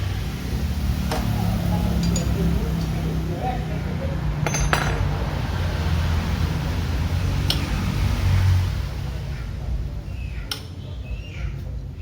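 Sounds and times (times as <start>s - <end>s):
hand tools clinking on metal: 2.0s - 2.6s, 4.4s - 5.3s.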